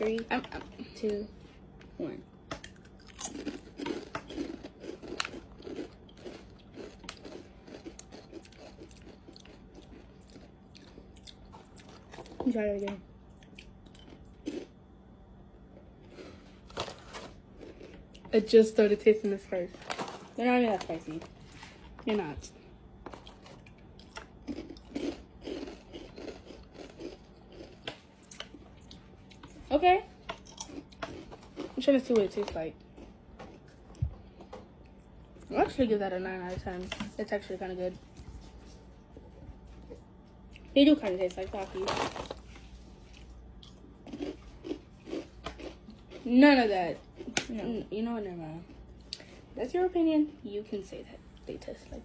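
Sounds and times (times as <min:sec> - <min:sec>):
mouth crunching snacks: 0:02.5 - 0:12.4, 0:13.3 - 0:14.7, 0:23.1 - 0:29.5, 0:30.3 - 0:31.8, 0:41.6 - 0:46.3.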